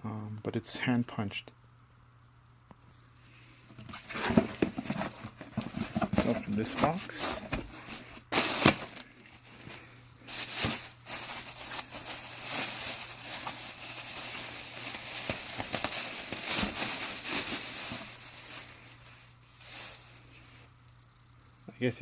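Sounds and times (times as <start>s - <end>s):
packing material rustling: 3.9s - 20.5s.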